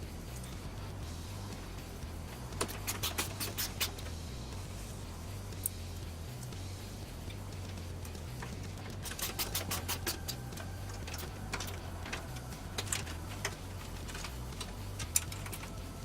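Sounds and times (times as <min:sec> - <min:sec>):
steady low hum: 0:00.0 - 0:16.0
small parts clicking and tapping: 0:08.0 - 0:16.0.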